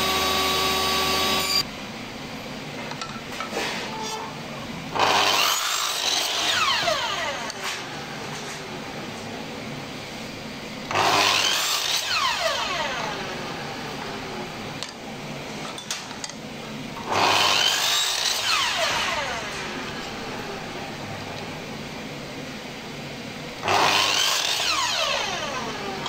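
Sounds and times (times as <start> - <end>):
power tool winding down: 0.0 - 1.6, 5.0 - 7.8, 10.9 - 13.9, 17.0 - 20.2, 23.6 - 26.0.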